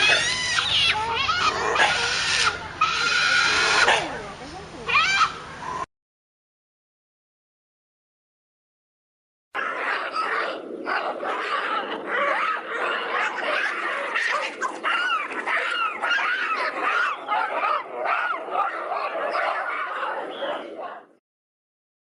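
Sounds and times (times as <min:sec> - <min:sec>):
monkeys calling: 0:00.0 - 0:05.9, 0:09.6 - 0:21.1.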